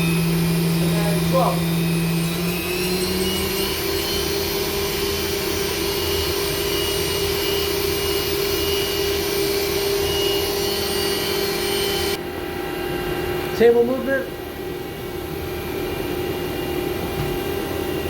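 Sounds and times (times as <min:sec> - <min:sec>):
machine spindle whining: 0:00.0 - 0:12.2.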